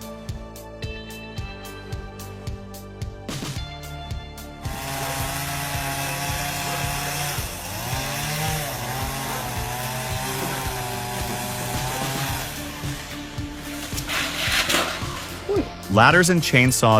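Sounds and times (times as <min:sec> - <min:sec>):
background music with steady beat: 0:00.0 - 0:16.9
wood-cutting machine cutting wood: 0:04.6 - 0:15.9.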